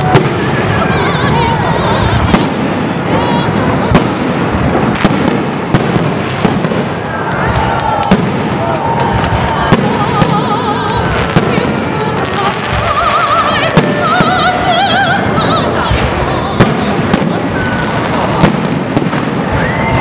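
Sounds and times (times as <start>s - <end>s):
person singing with vibrato: 0.0s - 4.4s, 9.5s - 18.4s
fireworks bangs: 0.0s - 20.0s
fireworks crackling: 0.0s - 20.0s.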